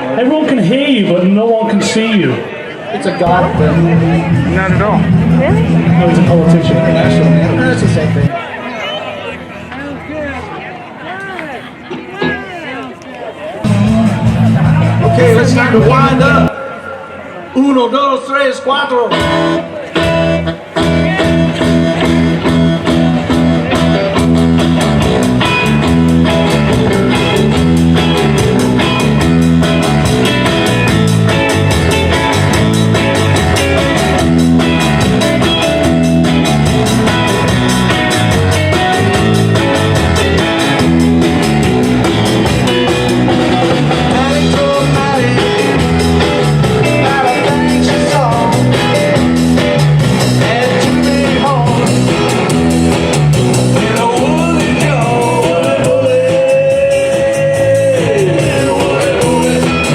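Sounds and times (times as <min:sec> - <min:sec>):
live rock band playing: 0:03.2 - 0:08.3, 0:11.2 - 0:16.5, 0:19.1 - 0:59.9.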